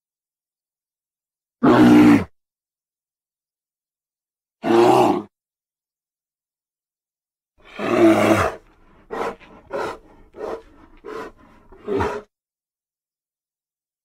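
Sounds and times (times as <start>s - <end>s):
bear growling roar: 1.6s - 2.3s, 4.6s - 5.3s, 7.6s - 12.3s
bear grunts: 7.6s - 12.3s.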